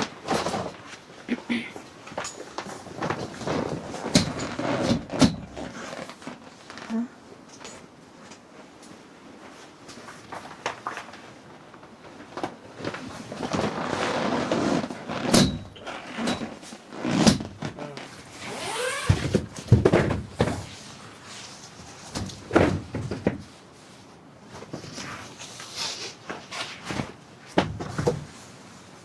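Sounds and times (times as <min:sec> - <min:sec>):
rustling: 0:12.8 - 0:23.0
knocks and thuds: 0:19.1 - 0:20.7, 0:27.6 - 0:28.3.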